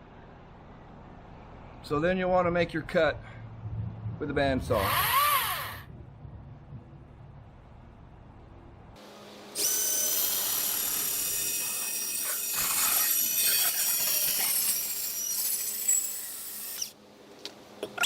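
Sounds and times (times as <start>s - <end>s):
bandsaw cutting steel pipe: 9.6s - 17.0s.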